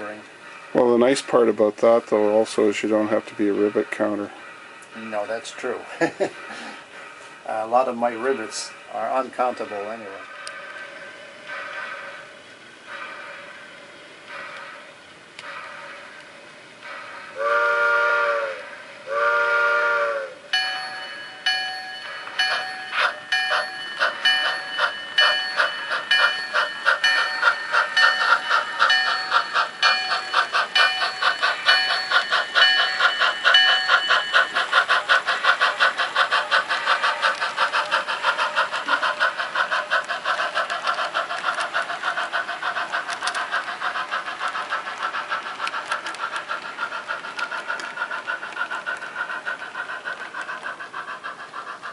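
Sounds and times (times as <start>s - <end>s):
steam locomotive chuffing: 0.0s - 51.9s
model train whistle blasts: 17.4s - 20.4s
ringing tones: 20.6s - 34.6s.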